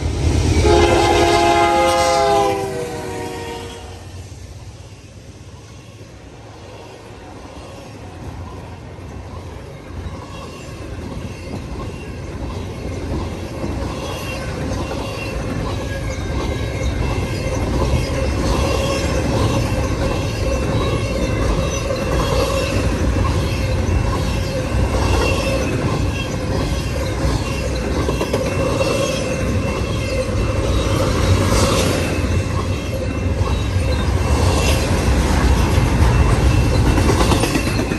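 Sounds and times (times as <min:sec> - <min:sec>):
freight train rumble: 0:00.0 - 0:37.9
rail cars clicking over joints: 0:07.9 - 0:37.9.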